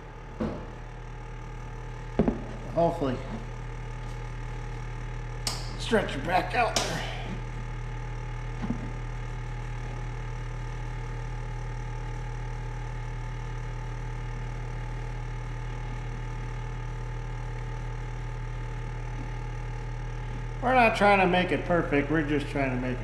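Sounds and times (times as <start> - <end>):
electric appliance humming: 0.0 - 23.0
faint knock: 2.2 - 2.6.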